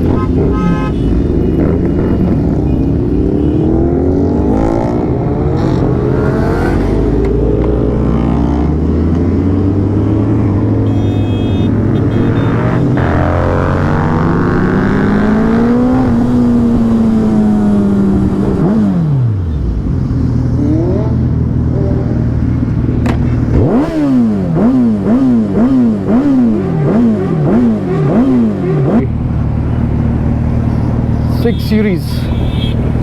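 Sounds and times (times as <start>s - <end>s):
engine revving: 0.0s - 19.4s, 23.0s - 29.1s.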